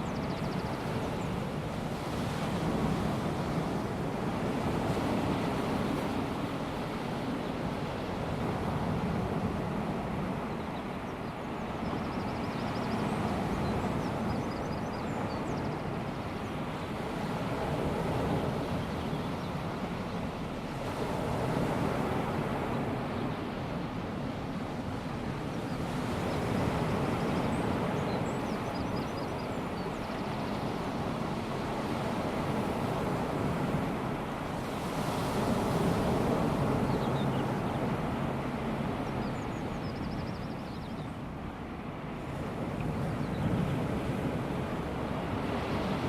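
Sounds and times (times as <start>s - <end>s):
small waves washing on sand: 29.5s - 39.2s.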